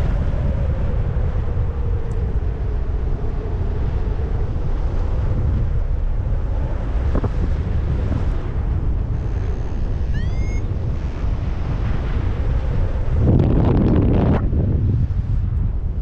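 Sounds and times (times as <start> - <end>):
wind buffeting microphone: 0.0 - 16.0
high chirp rising in pitch: 10.1 - 10.7.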